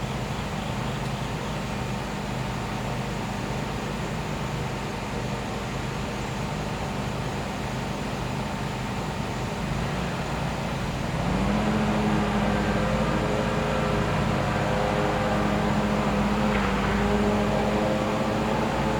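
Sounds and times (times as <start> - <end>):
generator engine humming: 8.1 - 18.9.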